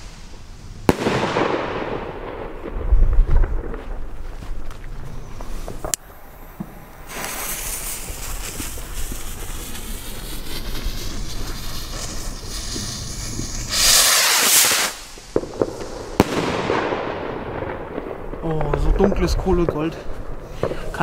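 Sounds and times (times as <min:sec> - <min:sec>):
firework rocket hissing: 0:00.0 - 0:02.8, 0:05.2 - 0:18.3
rocket launching rushing hiss: 0:00.0 - 0:03.7, 0:05.5 - 0:18.2.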